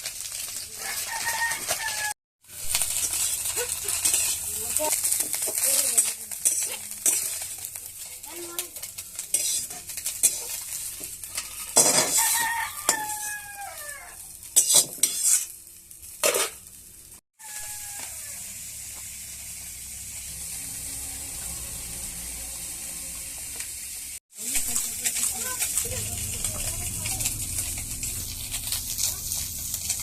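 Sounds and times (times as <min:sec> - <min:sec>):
fish frying in oil: 0:00.0 - 0:30.0
spatula scraping a pan: 0:00.1 - 0:16.7, 0:24.6 - 0:30.0
rooster crowing: 0:00.8 - 0:02.2, 0:12.1 - 0:14.2, 0:17.4 - 0:18.6.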